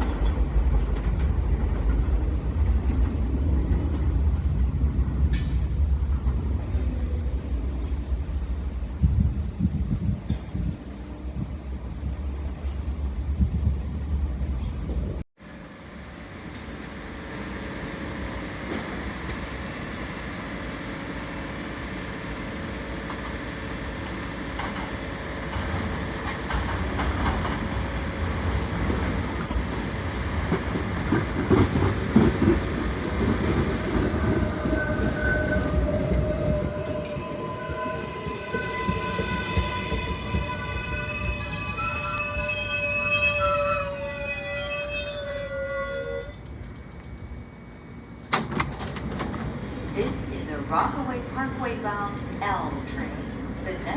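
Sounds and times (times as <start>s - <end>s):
subway train rumbling into station: 0.0s - 53.9s
wheels clattering over rails: 16.6s - 40.4s, 48.2s - 51.2s.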